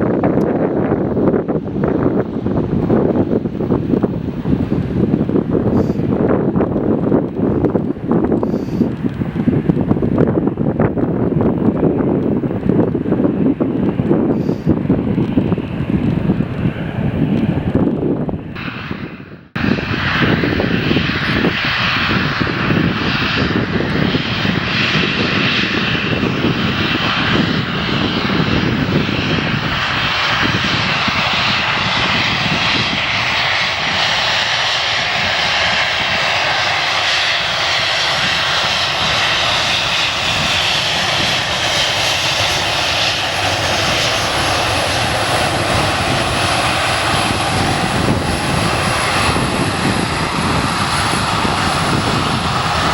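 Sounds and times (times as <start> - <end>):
jet engines passing: 0.0 - 52.9.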